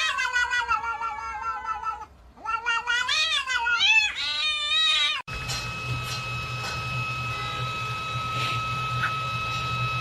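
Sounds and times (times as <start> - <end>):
cat yowling: 0.0 - 5.3.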